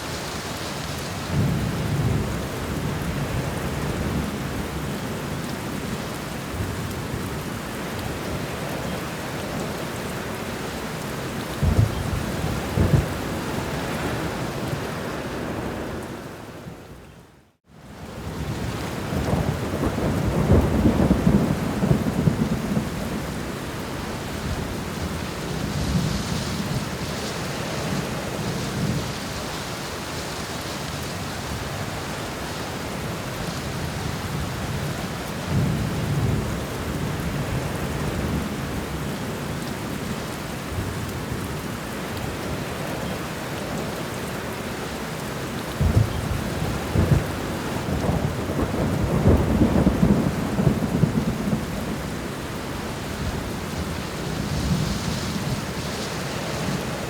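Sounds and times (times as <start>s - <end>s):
steady rain: 0.0s - 57.0s
thunder rumbling: 11.5s - 14.8s, 18.3s - 23.5s, 45.7s - 56.9s.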